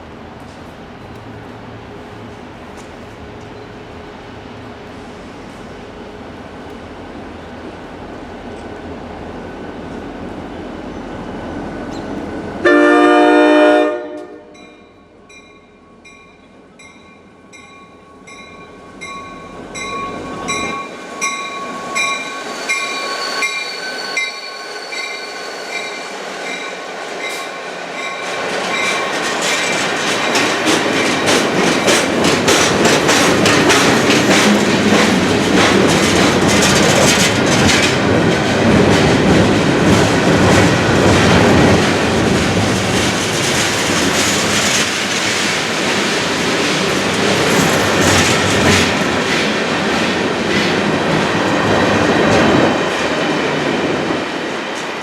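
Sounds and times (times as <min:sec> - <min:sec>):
locomotive horn blast: 0:12.6 - 0:14.7
wheels clicking over rail joints: 0:28.5 - 0:51.2.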